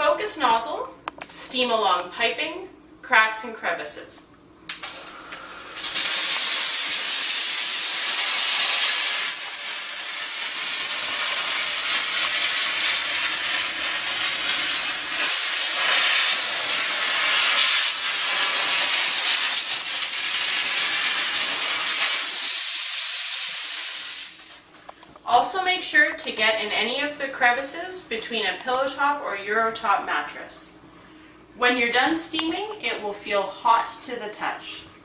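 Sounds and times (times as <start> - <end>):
steam cleaner hissing: 4.8 - 24.7.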